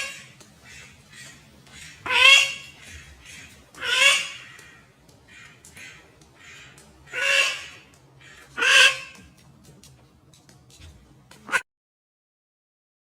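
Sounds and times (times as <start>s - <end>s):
bird calling loudly: 0.0s - 9.4s.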